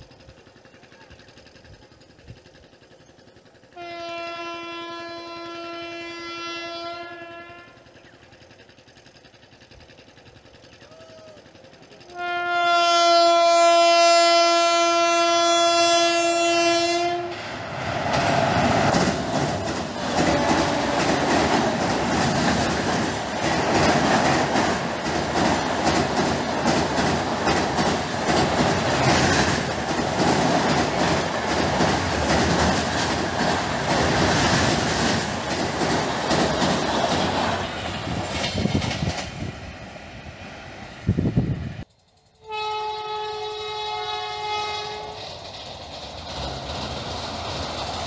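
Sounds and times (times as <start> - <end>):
locomotive horn: 3.7 - 7.9, 12.0 - 17.4, 20.0 - 21.4, 42.4 - 45.3
train wheels clattering on bridge: 16.0 - 39.7, 44.7 - 48.0.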